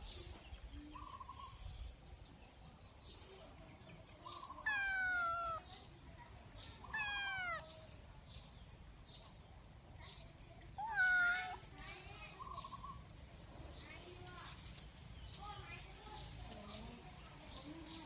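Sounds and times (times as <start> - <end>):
kitten meowing: 4.6 - 5.6, 6.9 - 7.7, 10.8 - 11.6.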